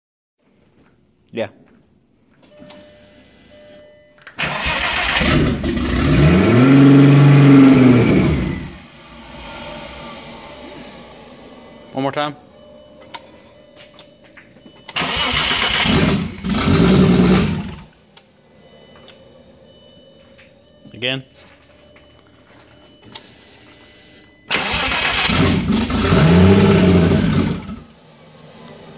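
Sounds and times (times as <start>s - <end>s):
engine cranking on starter: 4.4s - 10.8s, 14.9s - 17.9s, 24.5s - 27.9s.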